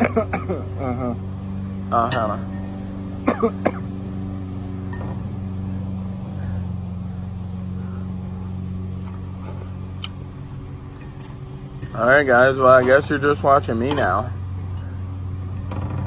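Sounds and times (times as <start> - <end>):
steady low hum: 0.0 - 16.0
utensils clinking against bowl: 12.6 - 15.0.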